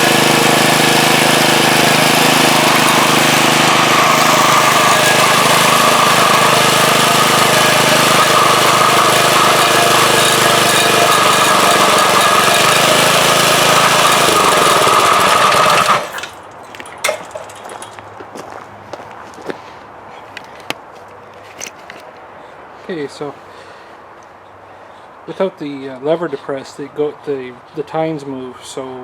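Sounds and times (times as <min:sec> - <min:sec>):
lawnmower engine running: 0:00.0 - 0:18.1.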